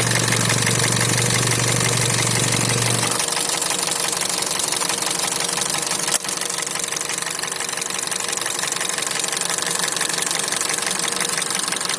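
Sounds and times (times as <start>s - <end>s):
car engine idling with knock: 0.0s - 11.9s.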